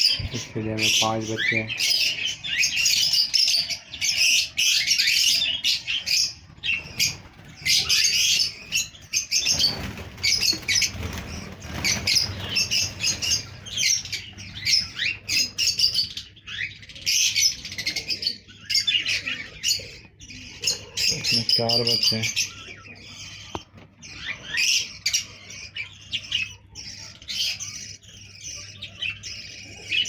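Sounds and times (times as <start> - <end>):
parrots chirping and chattering: 0.0 - 30.0
rustling flutter of wings: 6.6 - 15.3.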